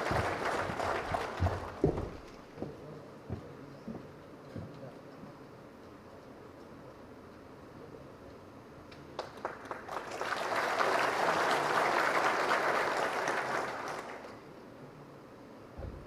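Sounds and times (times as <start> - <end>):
audience applause: 0.0 - 2.2, 9.2 - 14.4.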